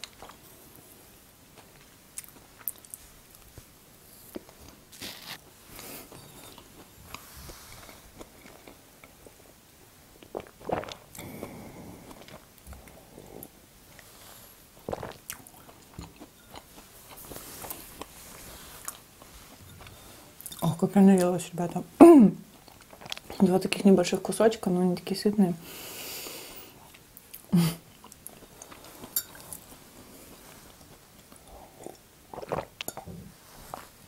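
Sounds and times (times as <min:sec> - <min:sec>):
chewing crumbly cake: 0:22.5 - 0:23.5, 0:28.0 - 0:34.0.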